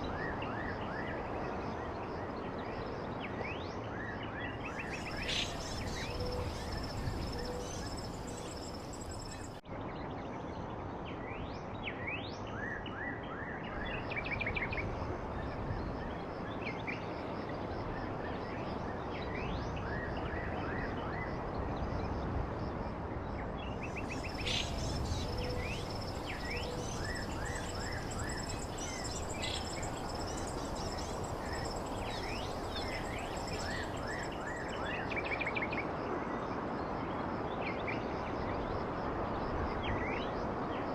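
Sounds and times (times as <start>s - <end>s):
outdoor ambience hiss: 0.0s - 12.6s, 13.6s - 40.9s
small songbirds chirping: 3.0s - 9.6s, 23.4s - 35.8s.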